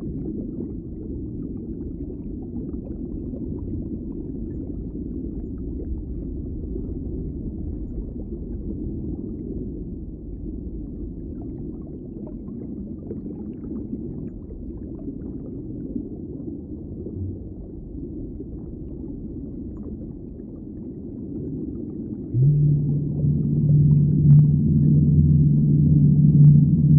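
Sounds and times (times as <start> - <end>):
muffled underwater rumble: 0.0 - 26.9.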